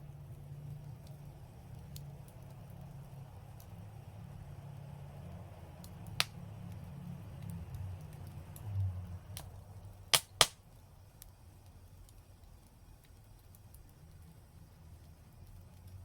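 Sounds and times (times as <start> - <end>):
fire crackling ticks: 0.0 - 16.0
low rumble of fire: 0.0 - 16.0
sharp pops of burning wood: 5.8 - 14.3.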